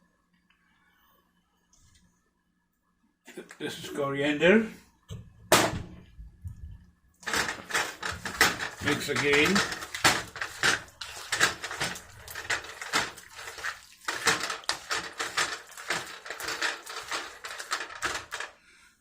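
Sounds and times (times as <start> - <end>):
utensil scraping a pot: 7.2 - 18.6.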